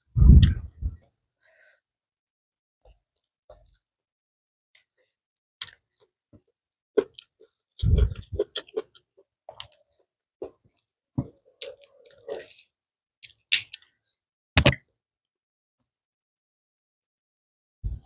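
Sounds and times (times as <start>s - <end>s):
person chewing food: 7.0s - 13.8s.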